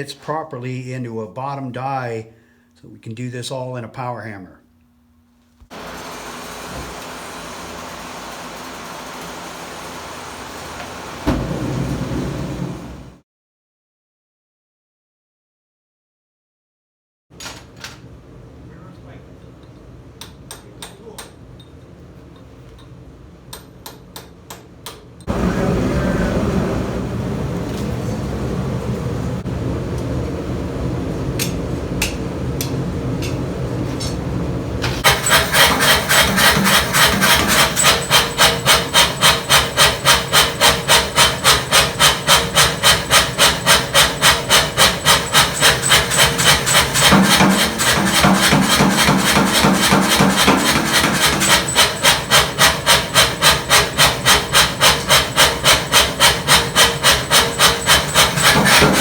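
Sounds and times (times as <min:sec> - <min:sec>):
power hammer pounding steel: 0:35.0 - 0:59.0.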